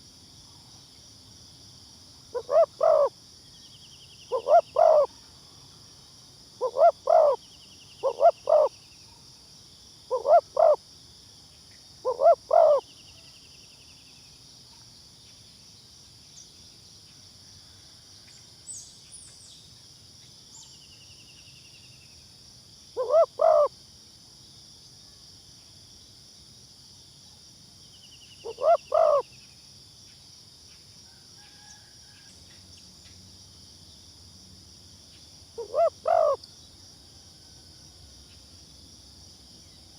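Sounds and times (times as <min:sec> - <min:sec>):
dove cooing: 0:02.4 - 0:03.1, 0:04.3 - 0:05.1, 0:06.6 - 0:07.4, 0:08.0 - 0:08.7, 0:10.1 - 0:10.8, 0:12.0 - 0:12.8, 0:23.0 - 0:23.7, 0:28.4 - 0:29.2, 0:35.6 - 0:36.4.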